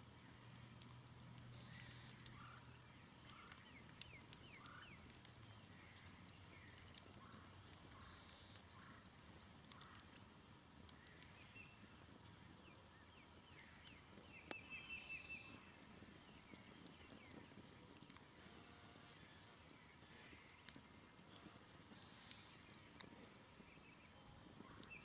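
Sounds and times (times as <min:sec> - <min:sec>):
campfire crackling and popping: 0:00.0 - 0:25.0
small birds chirping: 0:00.1 - 0:25.0.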